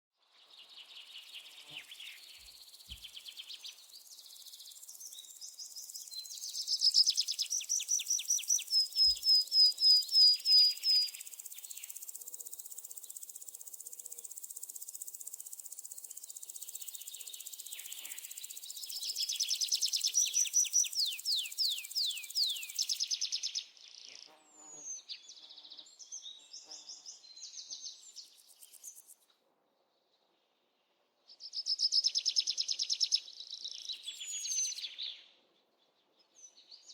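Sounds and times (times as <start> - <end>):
small birds chirping in trills: 0.2 - 29.3, 29.9 - 36.9
high insect buzz: 10.0 - 23.0.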